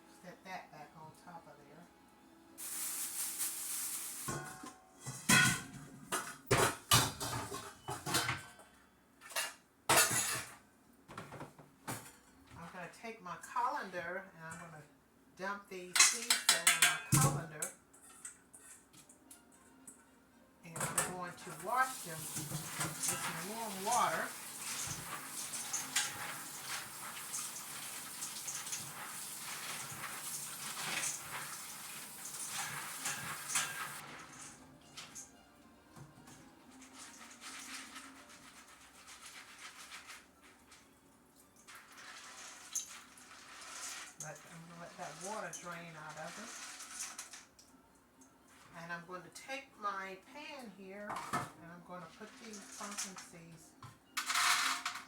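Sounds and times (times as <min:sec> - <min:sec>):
kitchenware clanking: 0:04.1 - 0:12.6, 0:15.9 - 0:20.0, 0:20.7 - 0:35.4, 0:51.1 - 0:55.0
tap water splashing on seeds: 0:21.6 - 0:34.0.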